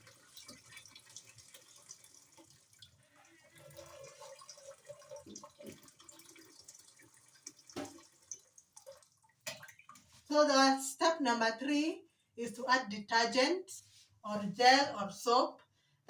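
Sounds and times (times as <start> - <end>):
water dripping into tub: 0.0 - 10.3.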